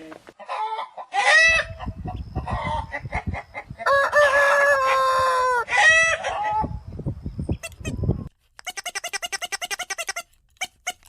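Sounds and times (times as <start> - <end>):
rooster clucking: 0.0 - 6.8, 7.6 - 11.0
rooster crowing: 3.8 - 6.8.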